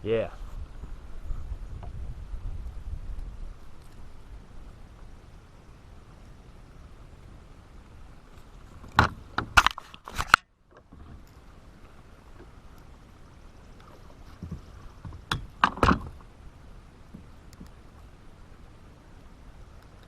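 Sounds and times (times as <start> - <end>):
knocks of gear on kayak: 8.8 - 11.2, 14.4 - 16.2.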